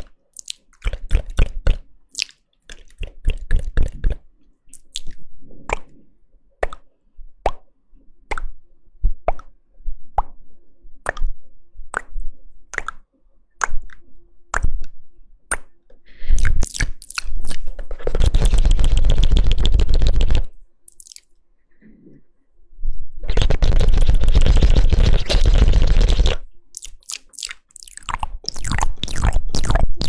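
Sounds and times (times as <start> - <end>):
wet mouth crackling: 0.0 - 5.9, 16.4 - 21.3, 23.3 - 30.0
wet mouth pops: 0.0 - 6.0, 6.6 - 6.9, 7.5 - 7.7, 8.3 - 8.6, 9.3 - 9.6, 10.2 - 10.4, 11.1 - 11.3, 11.9 - 13.0, 15.5 - 15.7, 16.4 - 21.3, 23.3 - 30.0.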